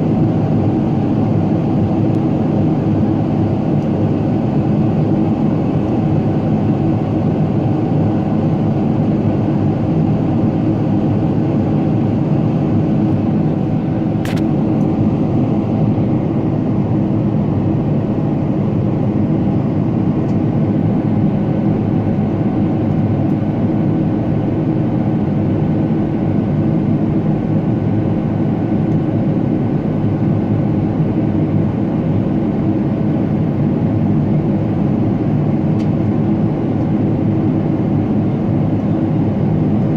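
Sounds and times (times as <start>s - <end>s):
airplane cabin engine noise: 0.0s - 39.9s
sharp click: 14.2s - 14.5s.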